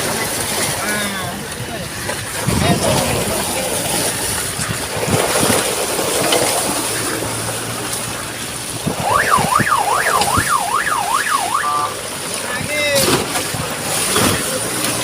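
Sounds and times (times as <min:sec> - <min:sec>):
traffic rushing in drizzle: 0:00.0 - 0:15.0
electronic siren: 0:08.8 - 0:12.0.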